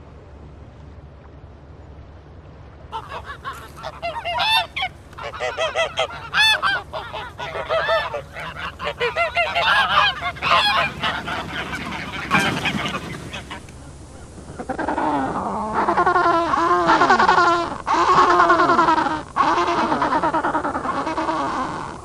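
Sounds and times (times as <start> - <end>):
geese honking: 3.0 - 13.8.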